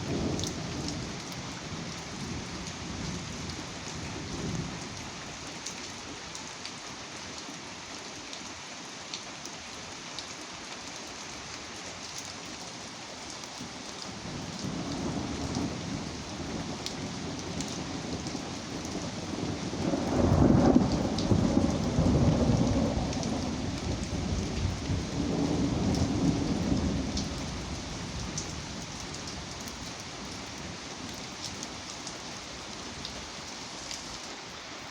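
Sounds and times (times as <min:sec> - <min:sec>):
steady rain: 0:00.0 - 0:34.9
thunder rolling: 0:19.7 - 0:27.8.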